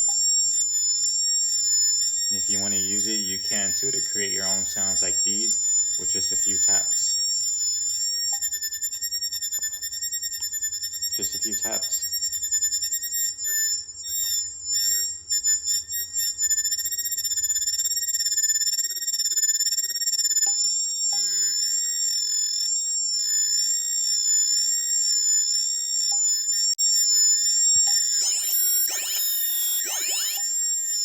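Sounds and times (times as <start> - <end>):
high warbling synthesized tones: 28.1 - 30.6.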